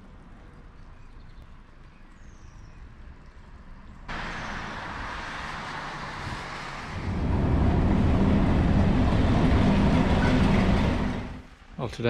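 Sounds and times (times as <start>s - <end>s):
freight train rolling rush: 4.1s - 11.5s
diesel locomotive engine drone: 4.1s - 11.7s.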